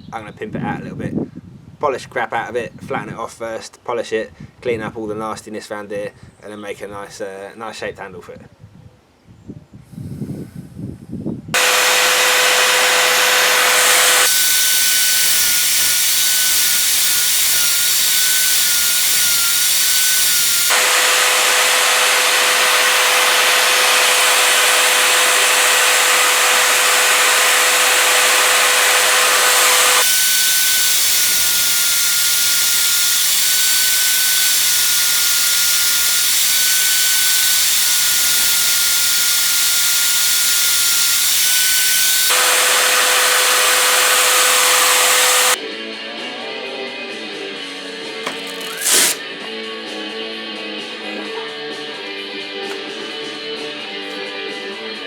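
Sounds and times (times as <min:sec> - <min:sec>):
grinder motor whine: 0:11.6 - 0:45.6.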